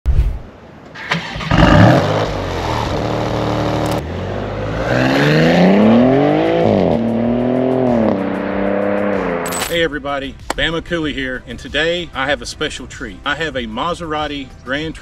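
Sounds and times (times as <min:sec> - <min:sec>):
car engine revving and idling: 0:01.5 - 0:09.6.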